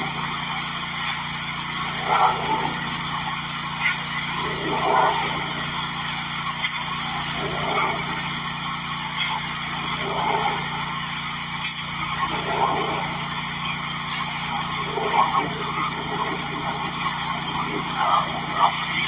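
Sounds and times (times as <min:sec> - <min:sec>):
pressure washer running: 0:00.0 - 0:19.0.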